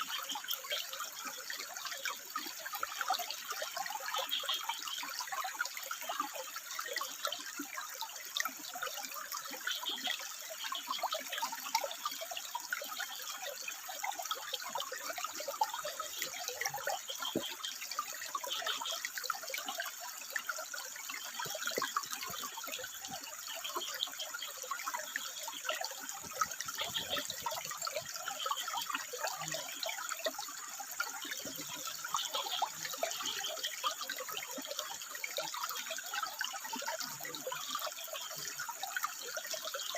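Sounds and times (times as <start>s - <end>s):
water trickling over rocks: 0.0s - 39.9s.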